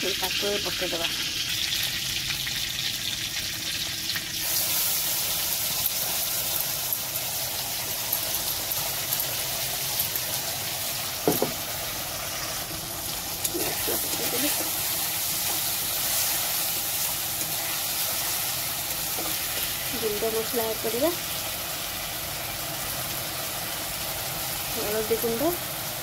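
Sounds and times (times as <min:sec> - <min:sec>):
hot oil sizzling: 0:00.0 - 0:26.0
utensil knock: 0:11.2 - 0:11.6.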